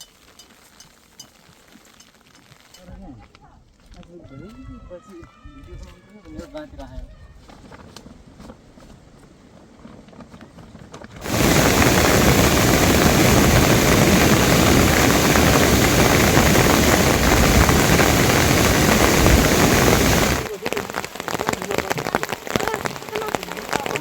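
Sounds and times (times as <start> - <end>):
heavy rain pouring: 11.2 - 24.0.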